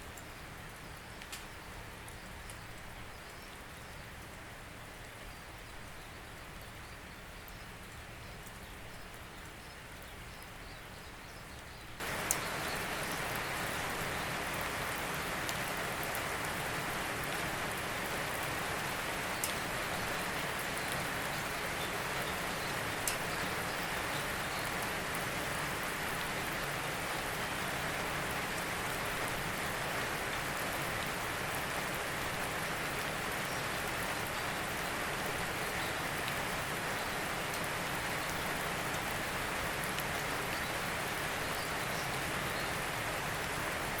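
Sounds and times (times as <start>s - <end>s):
raindrops ticking: 0.0s - 31.0s
steady rain: 0.0s - 44.0s.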